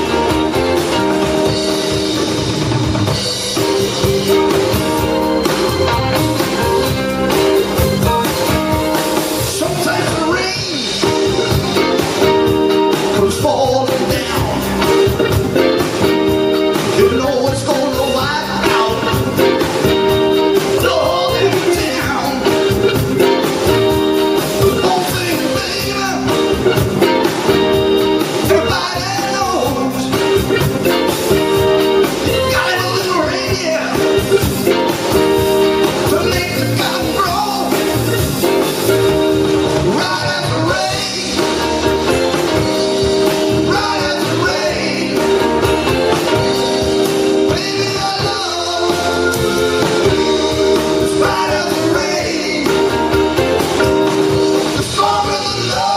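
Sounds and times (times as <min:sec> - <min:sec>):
blues band playing: 0:00.0 - 0:55.9
guitar: 0:00.0 - 0:55.9
person singing: 0:09.4 - 0:27.4, 0:32.3 - 0:38.8, 0:39.8 - 0:55.9.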